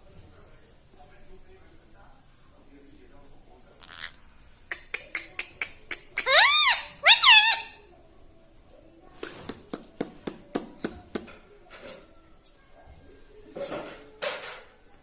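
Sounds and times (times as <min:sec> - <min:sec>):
parrot calls: 0:03.8 - 0:07.8.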